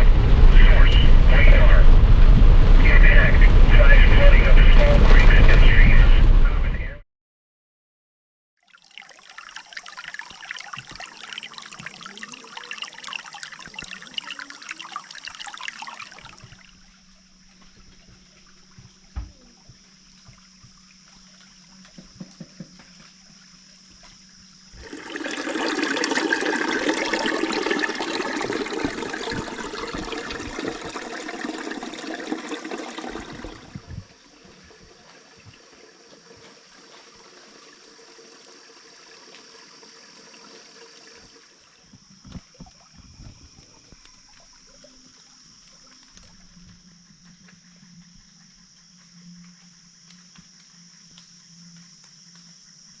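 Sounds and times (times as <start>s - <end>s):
rushing water: 0.0s - 6.2s, 8.6s - 19.3s, 24.7s - 46.5s.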